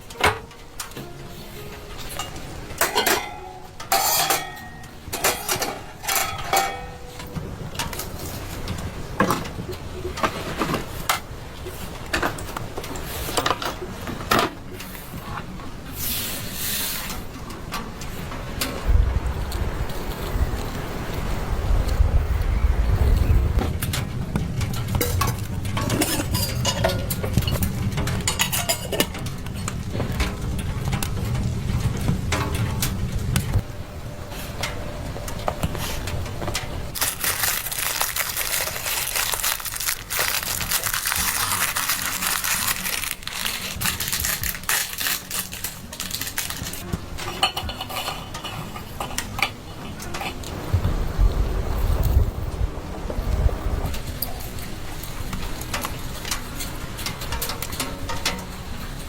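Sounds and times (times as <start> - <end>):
low rumble of wind: 0.0 - 59.0
clinks of hard objects: 2.0 - 8.4, 24.8 - 31.2, 36.9 - 50.5.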